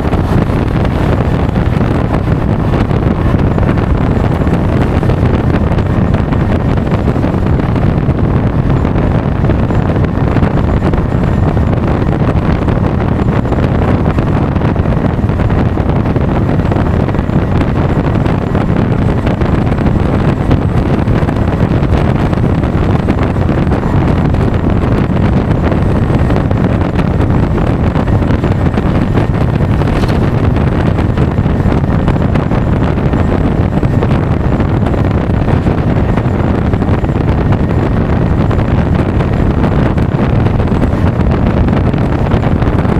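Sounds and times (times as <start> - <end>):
wind rush on microphone: 0.0 - 42.9.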